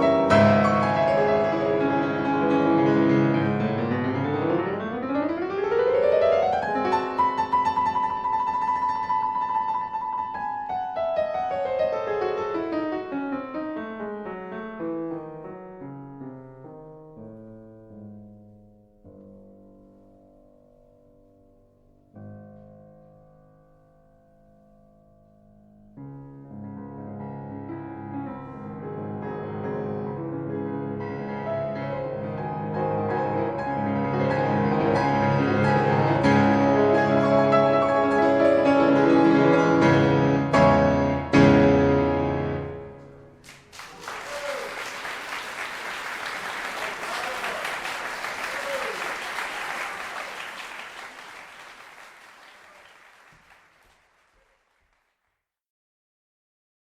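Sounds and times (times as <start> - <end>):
calm piano music: 0.0 - 43.4
audience applause: 43.4 - 55.1.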